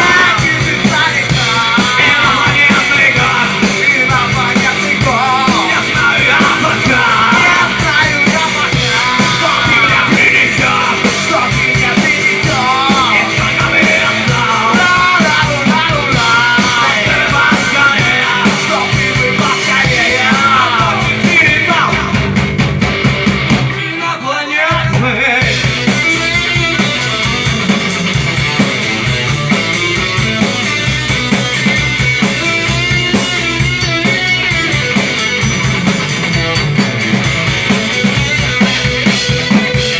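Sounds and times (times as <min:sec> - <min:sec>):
person singing: 0:00.0 - 0:22.3
drums: 0:00.0 - 0:39.9
electric guitar: 0:00.0 - 0:39.9.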